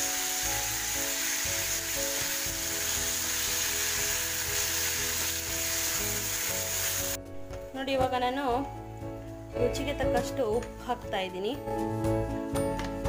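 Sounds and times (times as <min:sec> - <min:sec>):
chicken sizzling in hot oil: 0:00.0 - 0:07.2
background music with held notes: 0:00.0 - 0:13.0.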